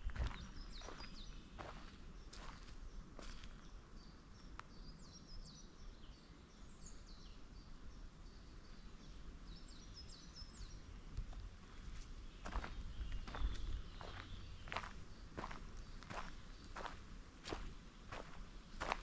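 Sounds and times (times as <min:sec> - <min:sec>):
footsteps on path: 0:00.0 - 0:03.6, 0:11.4 - 0:19.0
songbird singing: 0:00.0 - 0:19.0.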